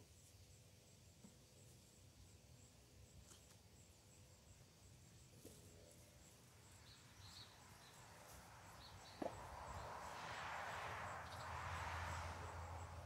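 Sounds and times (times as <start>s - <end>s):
soft bird chirps: 6.2s - 10.1s, 11.2s - 11.7s.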